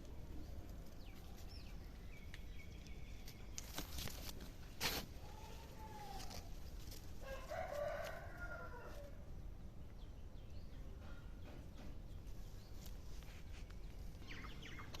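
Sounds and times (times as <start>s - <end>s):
rooster crowing: 7.2s - 9.2s
faint high bird chirps: 13.6s - 15.0s.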